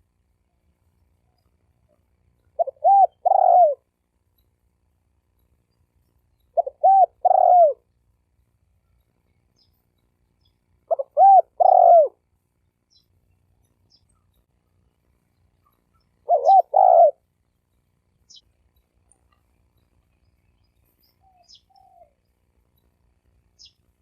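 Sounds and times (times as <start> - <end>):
dove cooing: 2.6 - 3.9, 6.5 - 7.9, 10.9 - 12.2, 16.2 - 17.2, 21.2 - 22.2.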